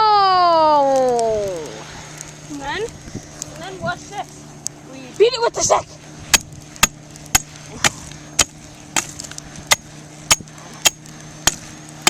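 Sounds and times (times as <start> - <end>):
stick whacking burnt paper: 6.2 - 12.0.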